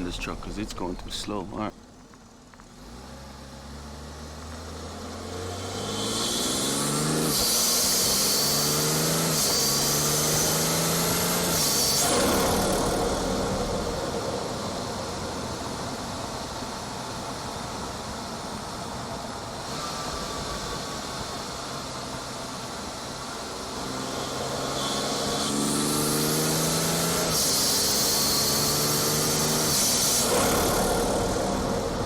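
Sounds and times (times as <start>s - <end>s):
car engine accelerating: 0.0s - 16.6s, 19.4s - 32.0s.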